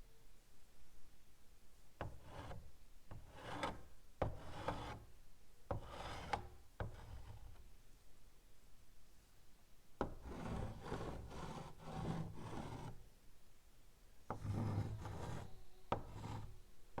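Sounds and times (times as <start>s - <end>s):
chalk tapping on blackboard: 2.0s - 5.0s, 5.7s - 7.6s, 10.0s - 13.0s, 14.3s - 16.5s
chalk scratching on blackboard: 2.0s - 5.1s, 5.7s - 7.6s, 10.0s - 13.0s, 14.3s - 16.6s.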